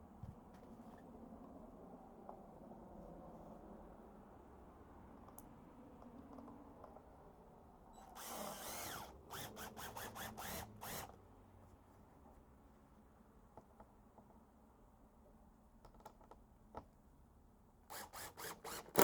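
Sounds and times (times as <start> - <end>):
power drill driving a screw: 8.0 - 11.2, 17.9 - 19.0.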